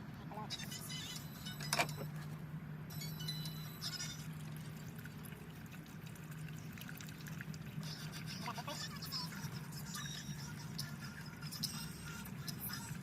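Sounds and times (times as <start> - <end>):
low constant hum: 0.0 - 13.0
liquid pouring from jug: 4.3 - 8.2.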